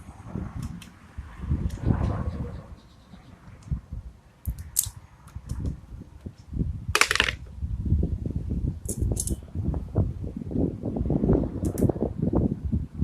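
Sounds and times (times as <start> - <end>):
metallic clicks of hand tools: 7.0 - 7.4, 8.9 - 9.4.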